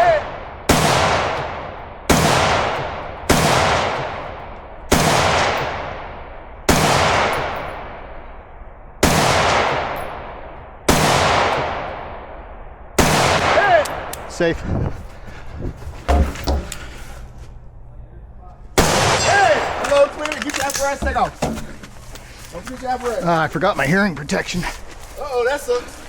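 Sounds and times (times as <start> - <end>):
rifle shots echoing: 0.0 - 14.3, 18.7 - 21.4.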